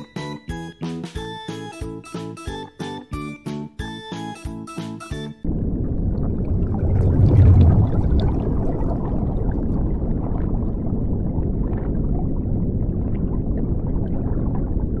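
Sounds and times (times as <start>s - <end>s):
low underwater rumble: 5.4s - 15.0s
underwater bubbling: 5.5s - 15.0s.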